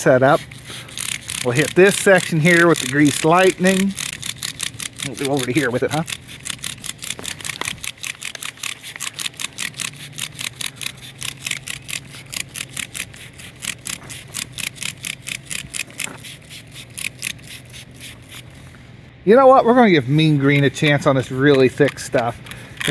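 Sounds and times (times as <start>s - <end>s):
spray bottle squirting: 0.0s - 18.8s, 20.2s - 22.9s.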